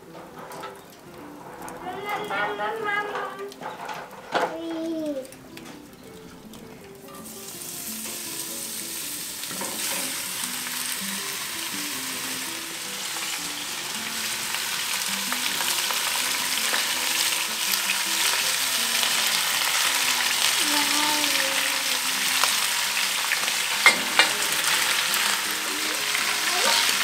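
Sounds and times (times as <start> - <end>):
meat sizzling in hot oil: 5.9 - 27.0.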